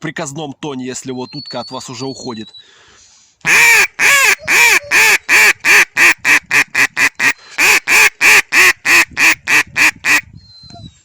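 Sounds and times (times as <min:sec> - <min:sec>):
duck call quacks: 0:03.5 - 0:10.2.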